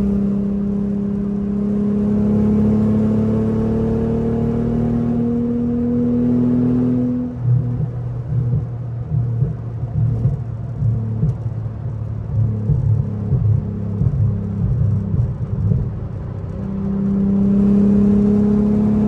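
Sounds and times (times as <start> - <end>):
car engine accelerating: 0.0 - 19.0
low uneven rumble: 7.3 - 17.2.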